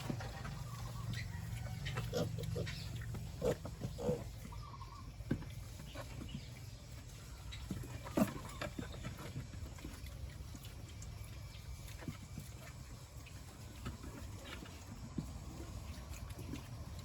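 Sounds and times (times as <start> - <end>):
chickens clucking: 0.0 - 17.0
pigs grunting: 1.7 - 5.0.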